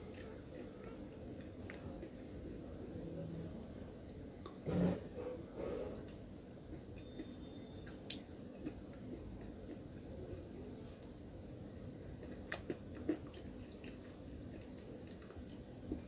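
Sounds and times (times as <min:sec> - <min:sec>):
person chewing crunchy food: 0:05.8 - 0:10.1, 0:12.0 - 0:16.0.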